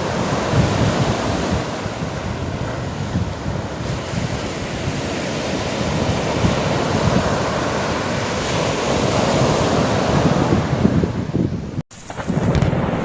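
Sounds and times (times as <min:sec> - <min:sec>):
sea surf washing on shore: 0:00.0 - 0:13.0
wind buffeting microphone: 0:00.0 - 0:13.0.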